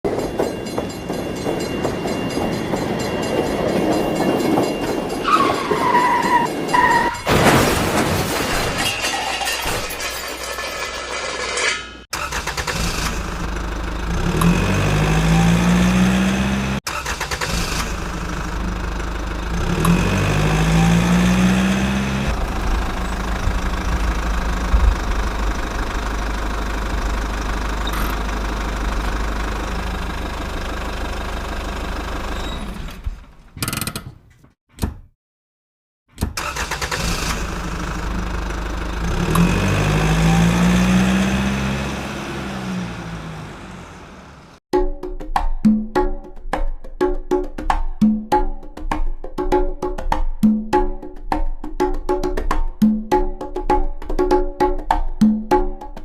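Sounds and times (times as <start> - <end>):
engine idling and revving: 11.3 - 33.3, 36.4 - 44.6.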